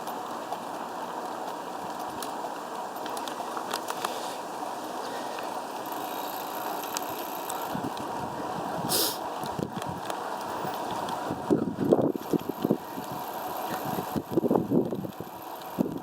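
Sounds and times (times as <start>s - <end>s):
bicycle clicks and rattles: 0.0s - 16.0s
wind rushing while cycling: 0.0s - 16.0s
wind gust on microphone: 7.6s - 16.0s.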